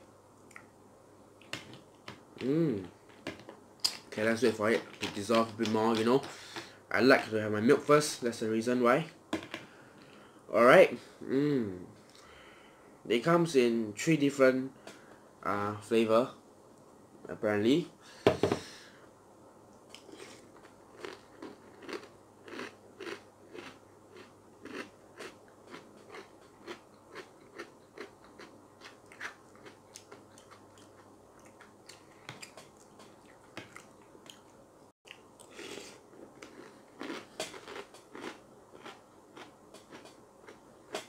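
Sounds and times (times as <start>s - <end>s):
person chewing crunchy cereal: 19.9s - 41.0s.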